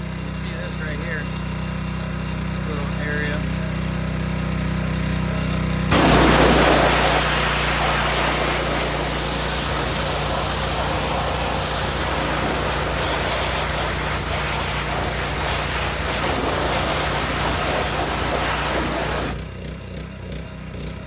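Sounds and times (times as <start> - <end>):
pressure washer engine and pump drone: 0.0 - 21.0
high-pressure spray hissing: 5.9 - 19.4.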